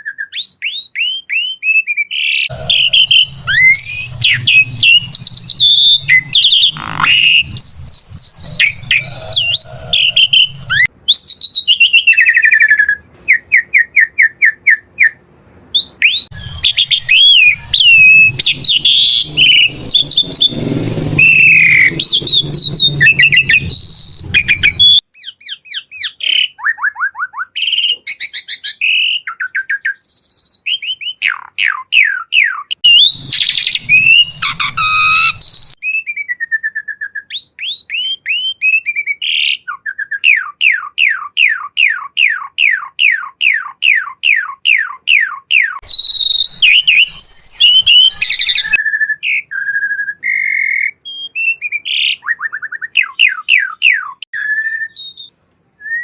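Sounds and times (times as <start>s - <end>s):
starling singing whistles: 0.0s - 15.2s, 15.8s - 20.6s, 21.2s - 28.2s, 28.8s - 56.0s
downward-sweeping whistles: 2.5s - 11.3s, 15.8s - 25.0s, 32.8s - 35.8s, 45.6s - 51.8s.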